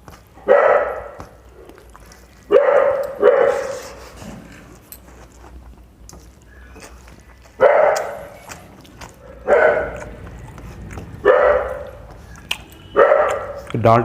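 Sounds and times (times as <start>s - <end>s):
dog barking: 0.4s - 1.4s, 2.5s - 4.0s, 7.6s - 8.6s, 9.2s - 10.2s, 11.2s - 12.2s, 12.9s - 13.7s.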